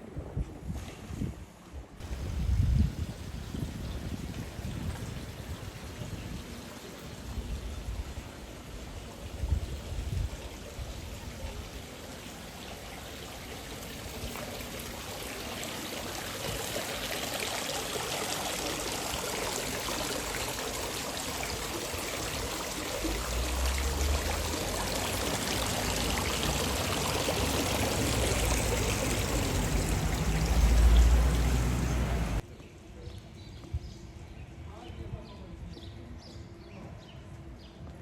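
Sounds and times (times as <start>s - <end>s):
running water splashing: 11.6s - 32.4s
low rumbles: 22.3s - 32.4s.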